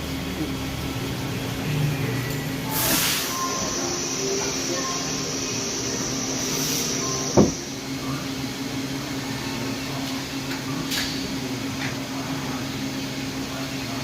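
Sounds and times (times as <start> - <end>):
lathe humming: 0.0 - 9.2
short hiss: 2.7 - 3.4.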